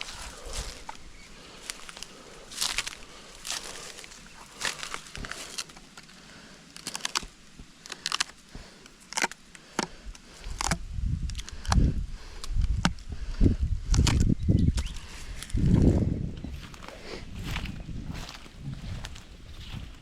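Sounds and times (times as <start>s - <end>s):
footsteps on rough ground: 0.0s - 20.0s
sharp clicks and snaps: 6.7s - 13.0s, 13.8s - 15.0s
heavy low thuds: 15.6s - 19.9s.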